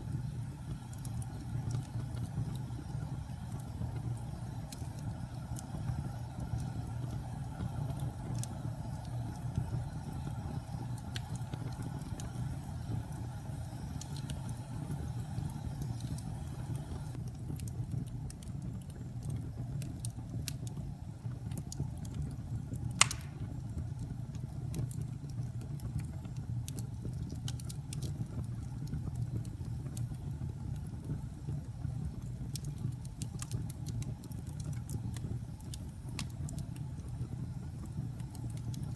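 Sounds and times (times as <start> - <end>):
fire crackling: 0.0 - 38.9
low rumble of flames: 0.0 - 38.9
loud sharp pop from fire: 23.0 - 23.8.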